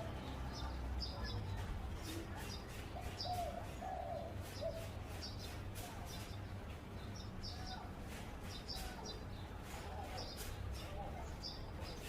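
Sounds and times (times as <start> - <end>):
small birds chirping: 0.0 - 12.0
dove cooing: 3.0 - 5.0.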